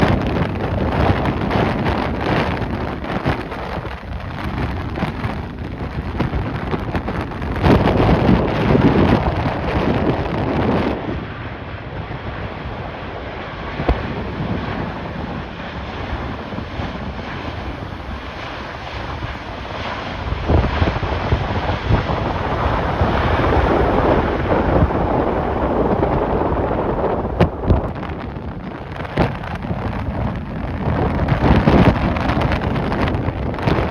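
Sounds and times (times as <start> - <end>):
gusty wind buffeting microphone: 0.0 - 33.9.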